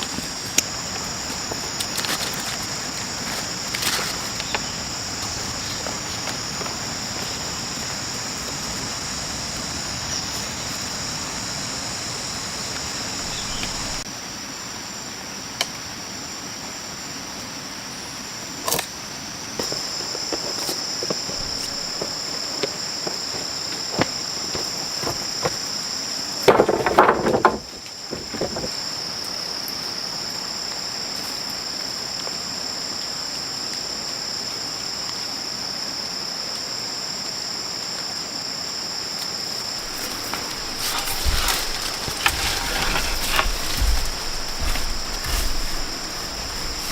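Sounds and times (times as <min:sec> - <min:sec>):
high-pitched insect drone: 0:00.0 - 0:14.1, 0:17.9 - 0:26.5, 0:27.6 - 0:46.9.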